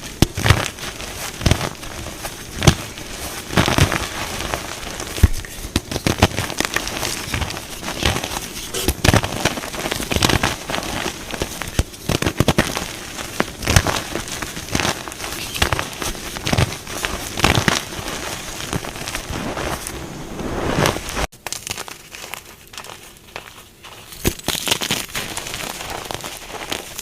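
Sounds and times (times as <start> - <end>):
chalk blocks crunching and crumbling: 0.0 - 20.0, 20.8 - 27.0.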